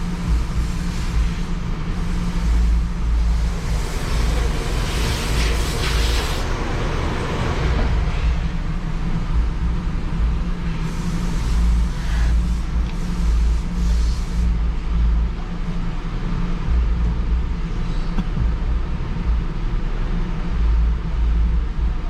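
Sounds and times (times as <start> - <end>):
hissy swells: 0.0 - 16.5
engine low rumble inside cabin: 0.0 - 22.0
road noise: 0.0 - 22.0.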